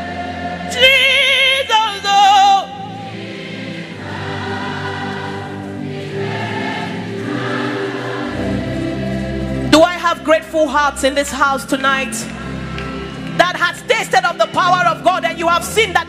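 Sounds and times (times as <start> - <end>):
soft sustained chords: 0.0 - 1.5, 2.6 - 16.0
voices singing: 0.0 - 9.7.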